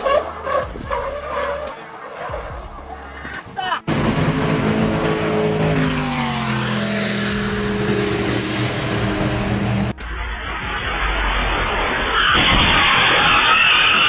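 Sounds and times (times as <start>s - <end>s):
road noise: 0.0s - 14.0s
vehicle engine running: 2.3s - 11.2s
low rumble: 3.9s - 13.0s.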